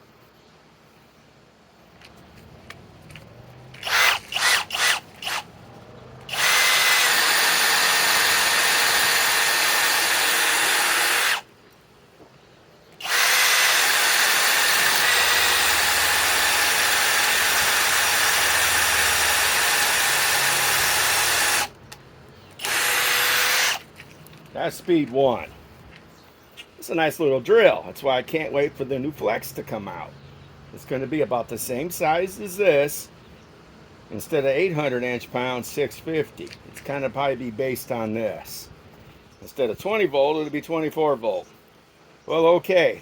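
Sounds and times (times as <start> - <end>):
cordless drill motor running: 3.7 - 5.5, 6.3 - 11.5, 13.0 - 21.8, 22.6 - 23.9.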